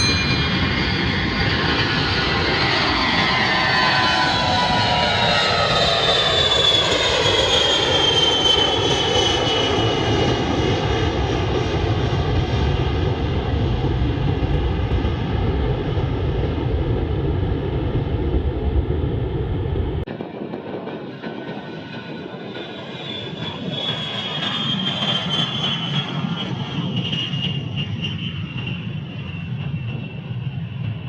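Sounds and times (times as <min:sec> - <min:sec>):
aircraft engine whine: 0:00.0 - 0:31.0
deep engine rumble: 0:16.4 - 0:20.1.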